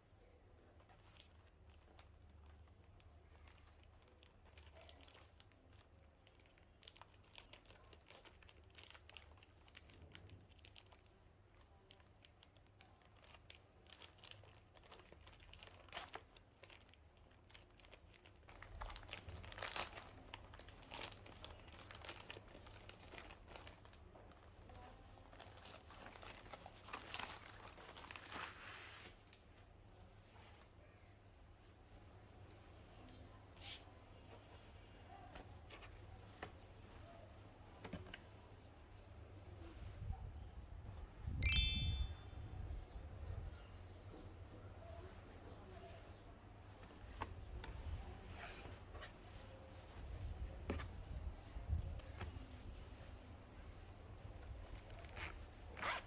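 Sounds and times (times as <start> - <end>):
packaging crinkling: 17.5 - 24.0.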